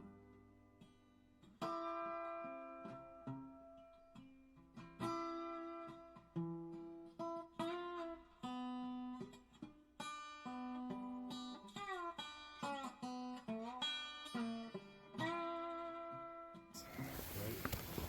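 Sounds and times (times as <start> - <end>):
acoustic guitar music: 16.8 - 18.0.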